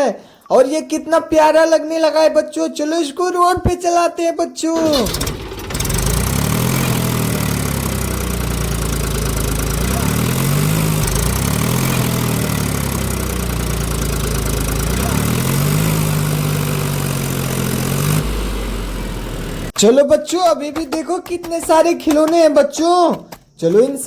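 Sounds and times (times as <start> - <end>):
tractor engine revving: 4.8 - 19.8.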